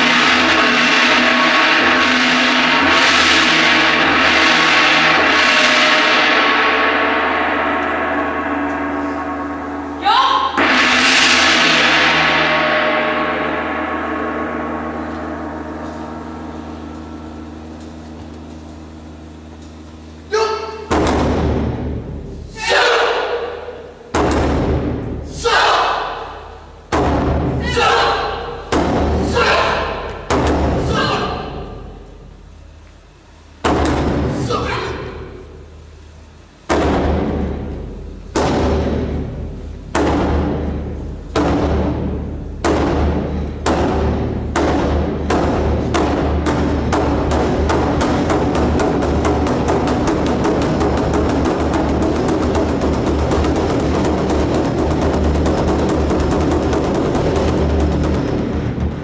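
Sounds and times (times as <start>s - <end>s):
gong ringing: 0.0s - 22.4s
booming drum hits: 0.0s - 59.0s.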